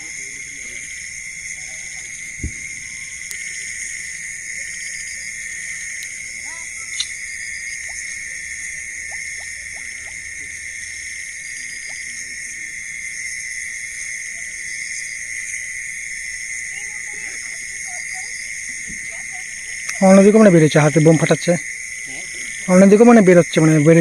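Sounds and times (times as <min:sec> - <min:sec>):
insects chorus drone: 0:00.0 - 0:24.0
short low thump: 0:02.4 - 0:02.9.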